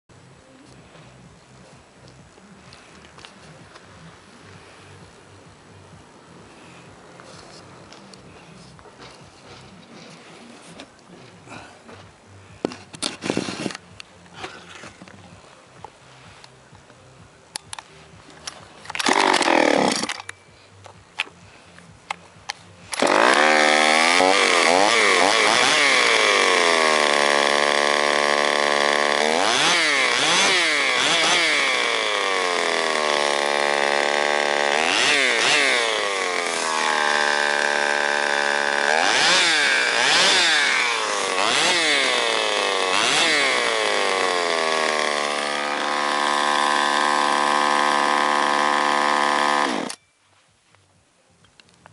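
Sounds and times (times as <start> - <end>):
chainsaw engine revving: 7.9 - 12.0, 18.9 - 20.3, 22.8 - 50.0.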